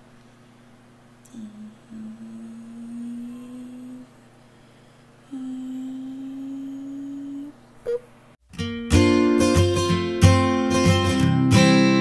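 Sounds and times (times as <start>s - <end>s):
woman humming softly: 1.2s - 4.3s, 5.2s - 8.1s.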